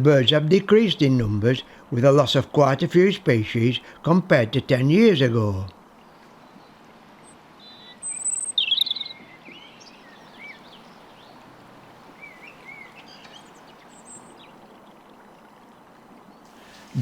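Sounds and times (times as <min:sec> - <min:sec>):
steady background hiss: 0:00.0 - 0:17.0
songbirds chirping and whistling: 0:06.1 - 0:17.0.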